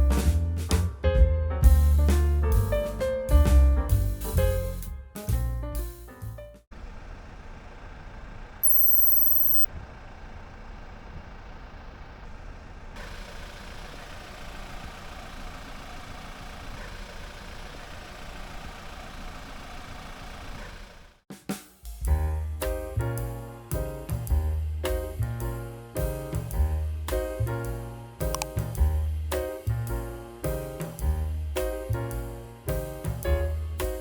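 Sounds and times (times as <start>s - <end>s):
outdoor background noise: 6.7s - 21.2s
vehicle engine hum: 6.7s - 21.2s
high-pitched electronic beep: 8.6s - 9.7s.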